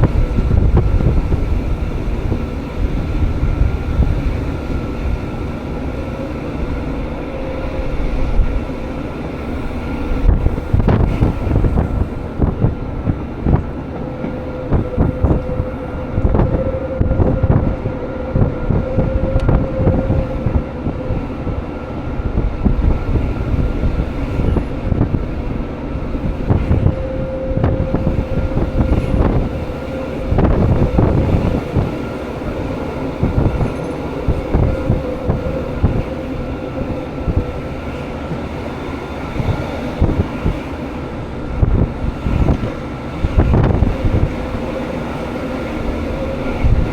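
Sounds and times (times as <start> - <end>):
electric train motor whine: 0.0 - 46.9
train rumble: 0.0 - 46.9.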